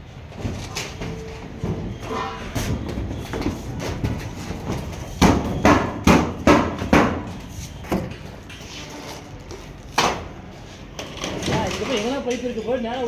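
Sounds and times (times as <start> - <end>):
hammer striking roof: 5.2 - 7.3.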